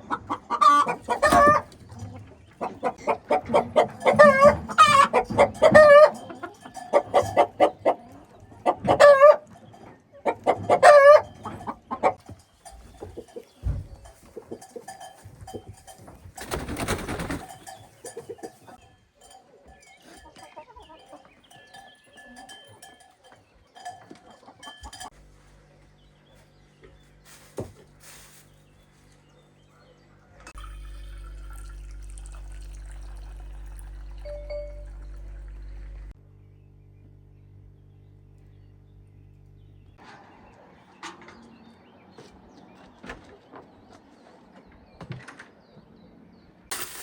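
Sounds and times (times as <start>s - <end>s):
chickens clucking: 0.0s - 25.2s.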